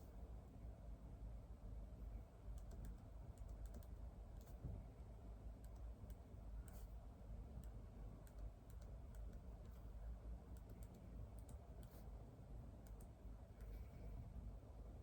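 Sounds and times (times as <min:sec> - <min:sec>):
low room hum: 0:00.0 - 0:15.0
faint keyboard typing: 0:02.5 - 0:04.7, 0:05.6 - 0:14.0.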